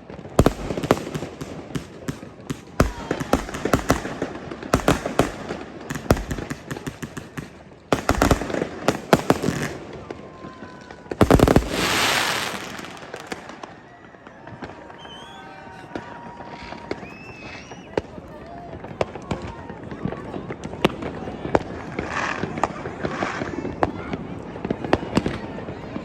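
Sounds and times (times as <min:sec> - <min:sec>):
firework crackling: 0:00.0 - 0:14.3
firework bangs: 0:00.0 - 0:15.1.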